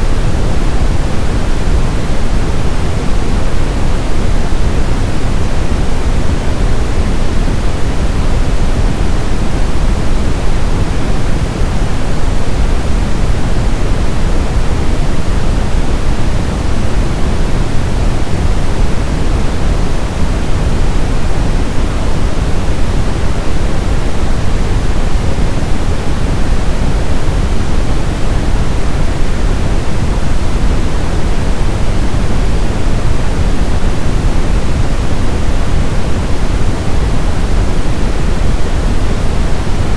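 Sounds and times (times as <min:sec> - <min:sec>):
brown noise: 0:00.0 - 0:39.9.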